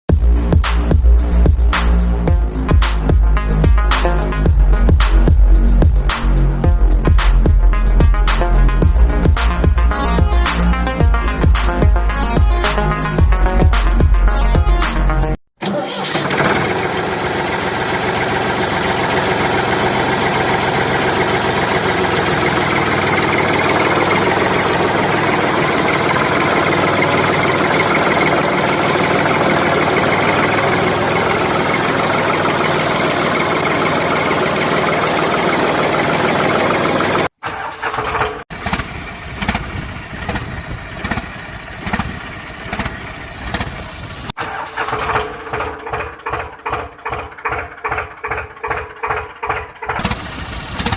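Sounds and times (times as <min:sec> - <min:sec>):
tractor engine running: 0:15.6 - 0:50.9.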